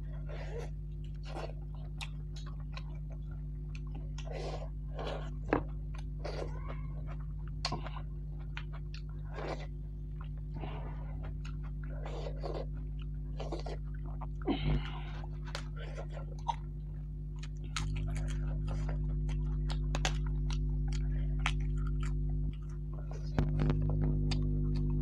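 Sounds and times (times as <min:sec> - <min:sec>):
person chewing wetly: 0:00.0 - 0:25.0
steady low hum: 0:00.0 - 0:25.0.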